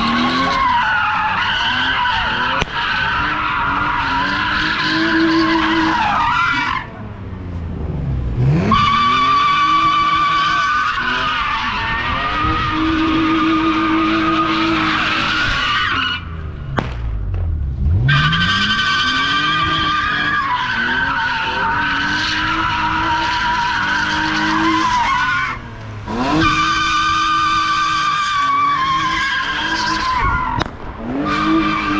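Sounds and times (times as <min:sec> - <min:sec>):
car engine revving: 0:00.0 - 0:31.9
tyres squealing: 0:18.0 - 0:30.6.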